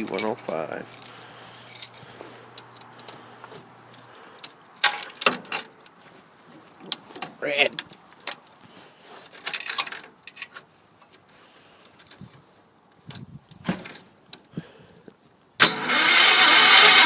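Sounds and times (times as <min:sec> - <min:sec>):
starter cranking engine: 0:15.6 - 0:17.0.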